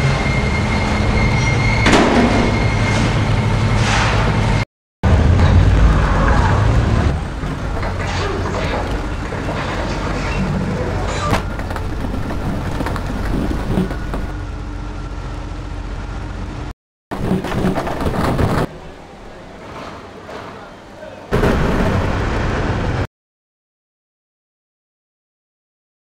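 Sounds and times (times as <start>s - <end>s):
car engines running: 5.1s - 16.7s.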